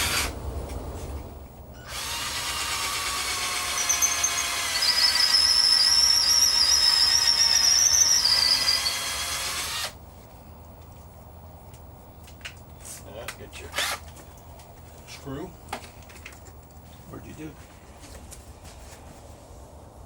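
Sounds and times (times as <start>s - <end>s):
electric drill running: 1.8s - 10.0s
high squeal: 3.7s - 9.2s.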